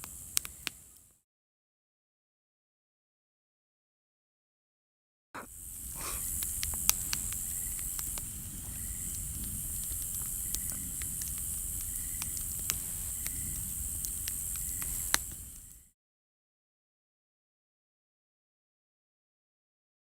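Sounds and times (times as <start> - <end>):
campfire crackling and popping: 0.0 - 1.1, 5.4 - 15.9.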